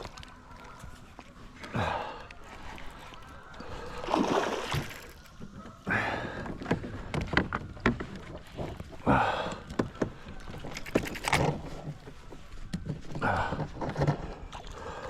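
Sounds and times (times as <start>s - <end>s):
paddle strokes swooshing water: 2.5s - 5.5s.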